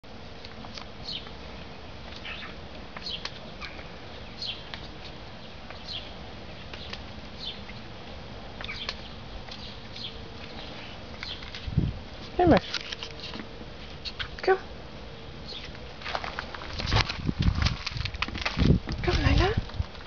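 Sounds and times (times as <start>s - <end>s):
faint steady hum: 0.0s - 20.0s
birds chirping: 1.0s - 7.9s, 8.5s - 11.6s, 12.3s - 16.0s.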